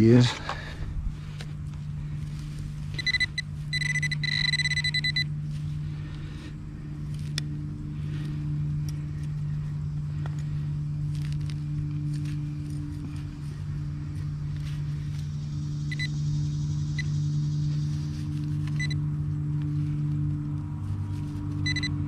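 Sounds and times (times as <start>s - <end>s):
low steady hum: 0.0s - 22.0s
metal detector beeping: 2.9s - 5.4s, 15.8s - 16.2s, 16.9s - 17.2s, 18.6s - 19.0s, 21.5s - 22.0s.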